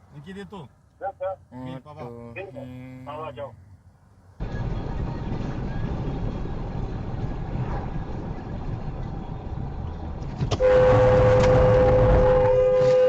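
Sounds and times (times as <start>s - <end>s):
car rumbling on road: 4.4s - 13.0s
car horn held tone: 10.6s - 13.0s.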